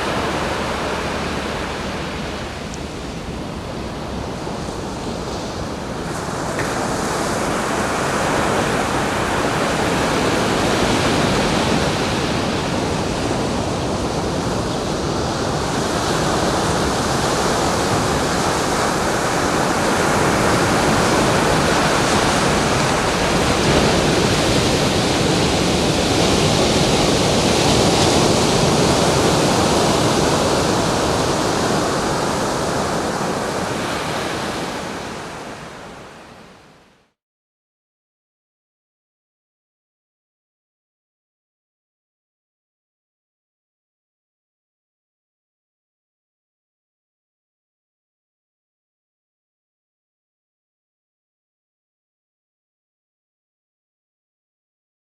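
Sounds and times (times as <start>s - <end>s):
ocean surf breaking: 0.0s - 37.0s.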